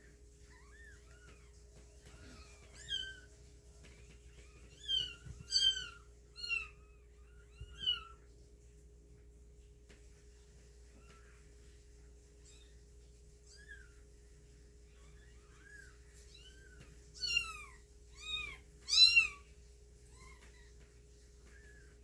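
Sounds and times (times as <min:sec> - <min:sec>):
cat chirping: 0:00.5 - 0:03.3, 0:04.4 - 0:08.2, 0:15.0 - 0:19.4
cat meowing: 0:00.5 - 0:03.3, 0:04.4 - 0:08.2, 0:15.0 - 0:19.4.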